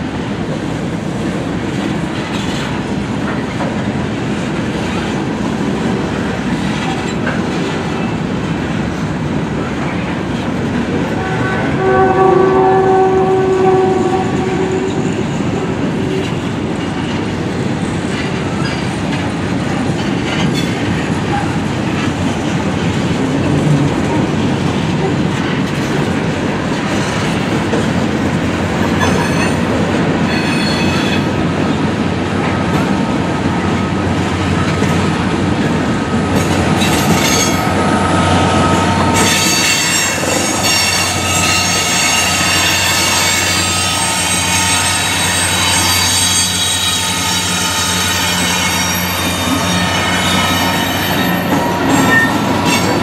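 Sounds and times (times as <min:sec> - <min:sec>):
freight cars rumbling and clattering: 0:00.0 - 0:11.8, 0:13.0 - 0:53.0
train horn: 0:11.1 - 0:16.4, 0:37.3 - 0:53.0.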